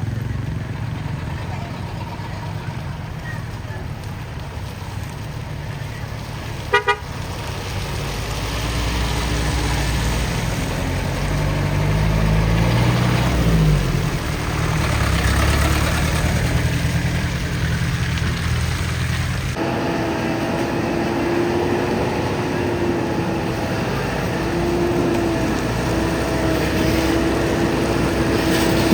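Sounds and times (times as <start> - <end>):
vehicle engine revving: 0.0 - 28.9
horn beeps: 6.7 - 7.1.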